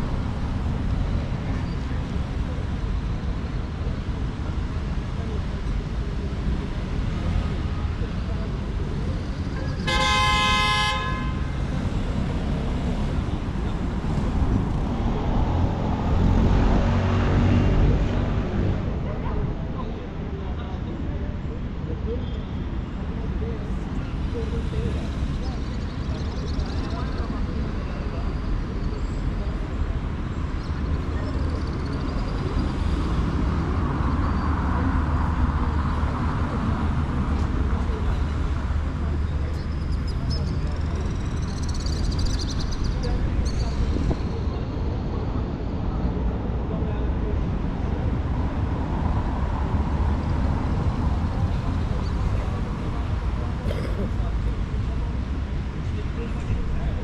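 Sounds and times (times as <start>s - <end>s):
city traffic rumble: 0.0s - 57.0s
vehicle horn toot: 9.8s - 11.6s.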